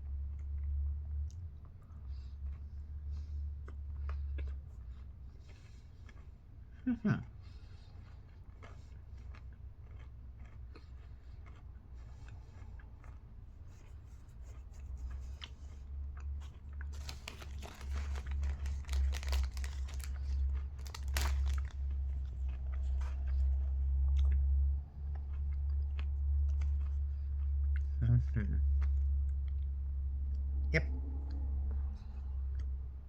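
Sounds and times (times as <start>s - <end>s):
crunchy chocolate chewing: 0.0s - 28.0s
low rumble: 12.0s - 33.0s.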